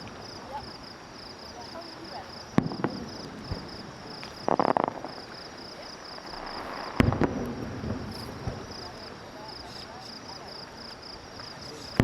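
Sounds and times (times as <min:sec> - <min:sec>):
fireworks crackling pops: 0:01.7 - 0:12.0
fireworks bang with rumble: 0:02.5 - 0:05.4, 0:06.1 - 0:09.1.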